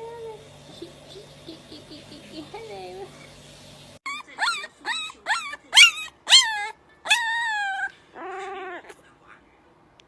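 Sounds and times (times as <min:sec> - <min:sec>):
dog whining: 0:04.0 - 0:09.0
dog yipping: 0:04.0 - 0:09.0.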